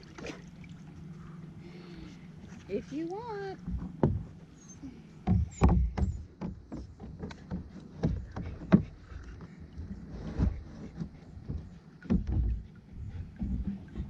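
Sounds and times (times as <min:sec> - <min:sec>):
knocks and thumps on kayak hull: 0:03.6 - 0:04.5, 0:05.2 - 0:14.0.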